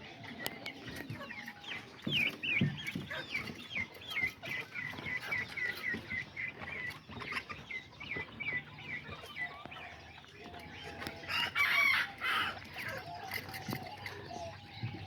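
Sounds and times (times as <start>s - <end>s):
chickens cheeping: 0.0s - 15.0s
chickens clucking: 0.0s - 15.0s
rooster crowing: 11.3s - 12.6s.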